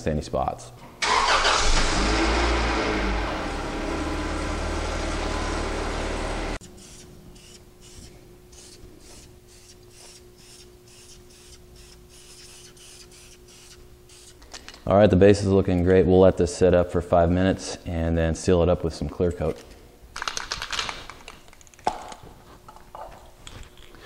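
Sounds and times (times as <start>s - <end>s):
car engine running: 1.6s - 6.6s
paint sprayer hissing: 6.1s - 14.4s.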